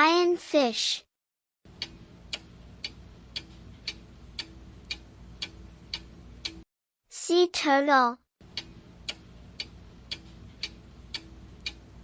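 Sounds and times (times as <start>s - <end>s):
clock ticking: 1.7s - 6.6s, 8.4s - 12.0s.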